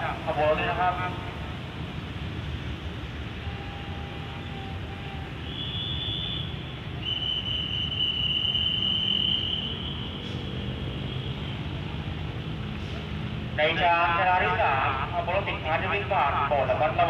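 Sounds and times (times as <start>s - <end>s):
distant train rumble: 0.0s - 17.0s
station background noise: 0.0s - 17.0s
high whistling tones: 3.4s - 11.4s.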